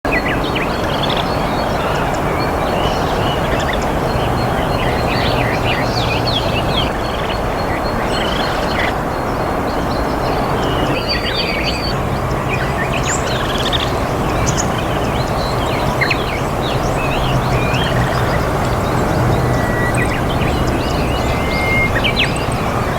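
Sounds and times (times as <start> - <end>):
steady outdoor background noise: 0.0 - 22.9
high bird chirps and calls: 12.6 - 22.9.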